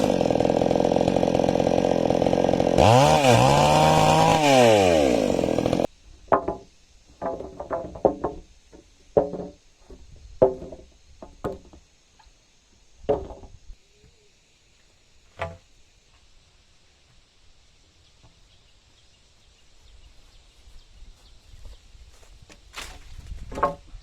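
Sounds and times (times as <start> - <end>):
tool striking timber: 0.0 - 9.6, 10.3 - 11.8, 13.0 - 13.6, 15.4 - 15.6, 23.5 - 23.9.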